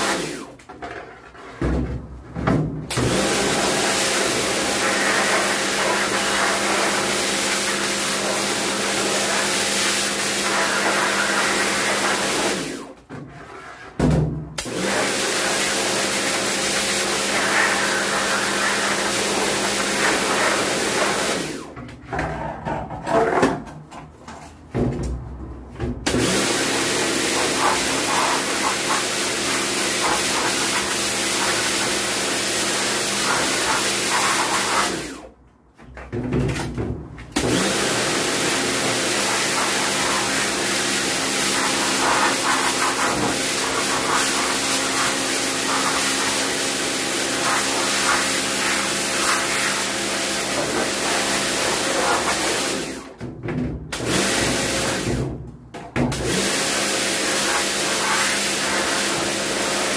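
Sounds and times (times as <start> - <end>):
electric cleaning machine hissing: 0.0 - 0.6, 2.9 - 13.0, 14.6 - 21.8, 26.1 - 35.3, 37.4 - 53.2, 54.0 - 55.2, 56.2 - 59.9.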